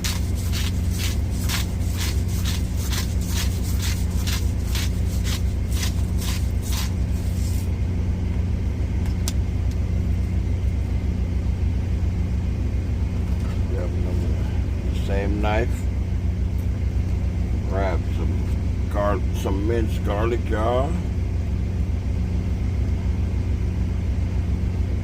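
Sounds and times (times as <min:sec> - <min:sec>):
salt shaker shaking: 0:00.0 - 0:07.7
steady low drone: 0:00.0 - 0:25.0.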